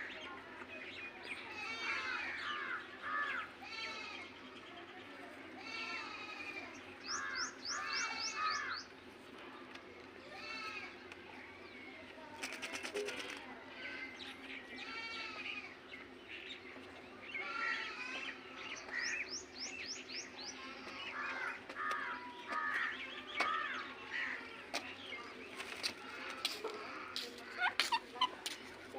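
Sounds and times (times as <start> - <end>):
parrots chattering and squawking: 25.6 - 28.9.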